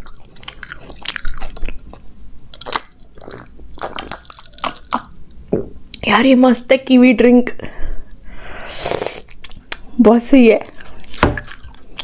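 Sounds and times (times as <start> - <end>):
food being chewed: 0.0 - 5.2, 9.2 - 9.9, 10.6 - 12.0.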